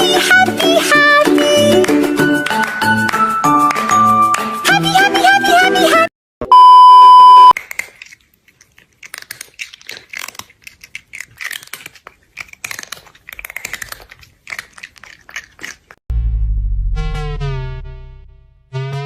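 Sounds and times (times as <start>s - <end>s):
loud steady beep: 6.5s - 7.5s
crunchy chewing: 7.5s - 16.0s
synth music with deep bass: 16.1s - 19.0s.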